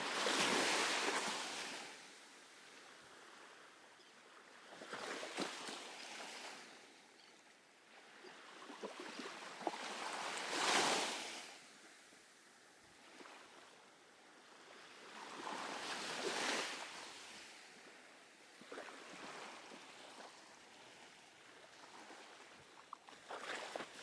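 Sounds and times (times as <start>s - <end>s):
small ocean waves breaking: 0.0s - 7.0s, 7.9s - 12.0s, 13.0s - 13.8s, 14.4s - 24.0s.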